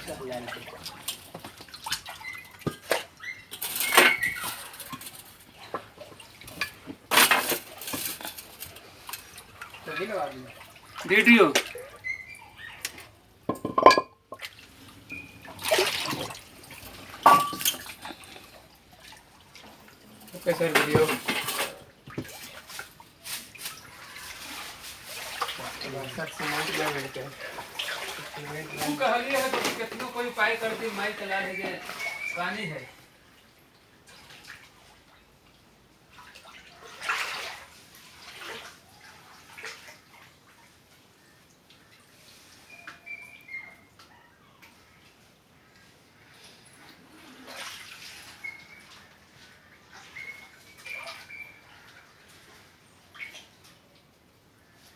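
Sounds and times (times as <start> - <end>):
floodwater sloshing and splashing: 0.0 - 44.1, 44.7 - 54.9
objects knocking and clinking: 6.5 - 9.2, 13.5 - 14.2, 17.2 - 18.2, 20.3 - 21.8.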